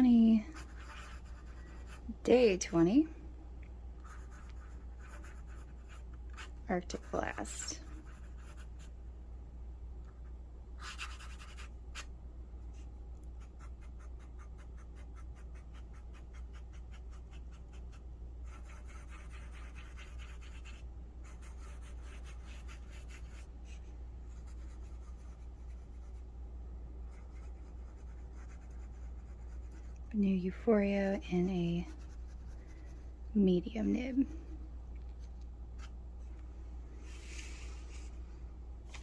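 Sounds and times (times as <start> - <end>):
steady low hum: 0.0 - 39.0
fountain pen nib scratching paper: 0.5 - 2.0, 10.8 - 12.1, 13.4 - 23.8.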